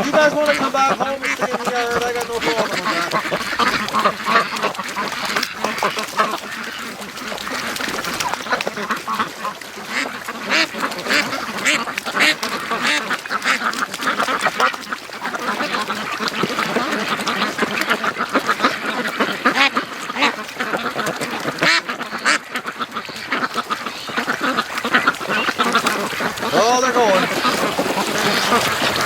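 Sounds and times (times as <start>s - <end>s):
ducks quacking: 0.0s - 29.0s.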